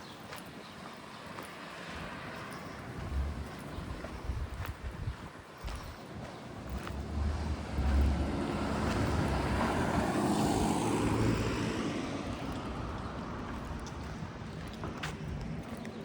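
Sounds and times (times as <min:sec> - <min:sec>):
vehicle passing by: 0:06.6 - 0:14.2.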